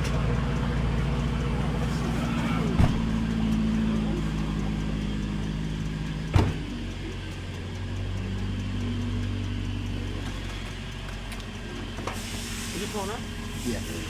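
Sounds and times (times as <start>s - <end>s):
car cabin hum: 1.0s - 4.8s, 6.2s - 7.2s.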